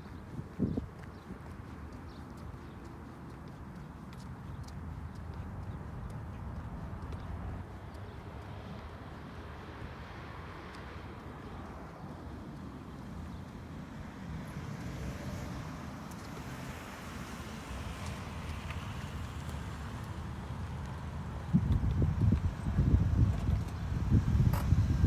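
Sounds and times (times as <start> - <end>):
wind buffeting microphone: 0.0 - 10.1, 20.0 - 25.0.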